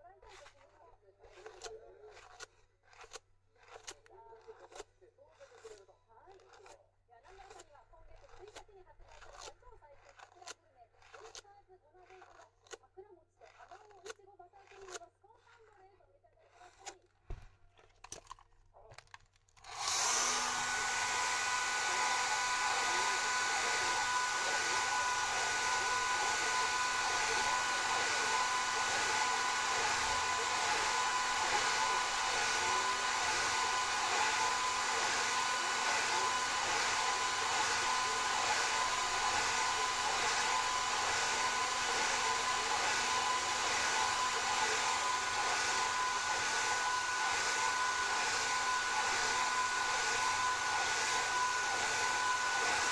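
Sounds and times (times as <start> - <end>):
hair dryer blowing: 19.6 - 52.9.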